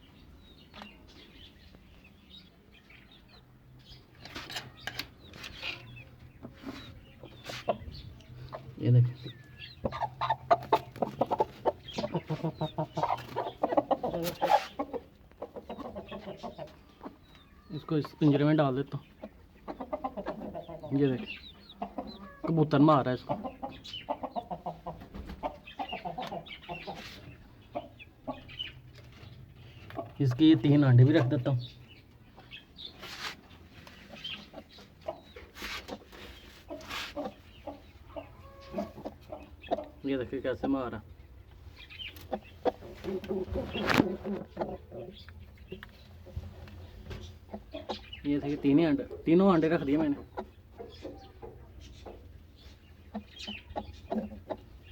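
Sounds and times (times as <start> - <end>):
hen clucking: 3.3 - 54.9
rustling: 32.9 - 34.2.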